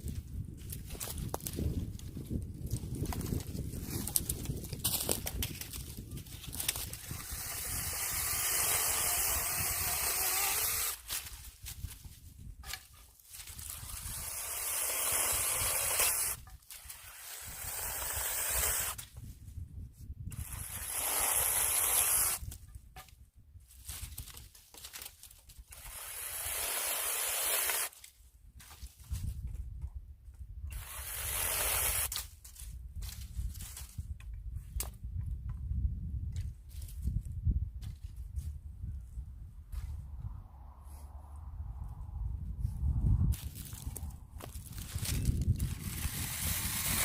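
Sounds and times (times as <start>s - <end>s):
mini chainsaw cutting branches: 6.4s - 11.4s, 13.3s - 19.1s, 20.3s - 22.6s, 25.7s - 28.0s, 30.7s - 32.3s, 44.4s - 47.0s.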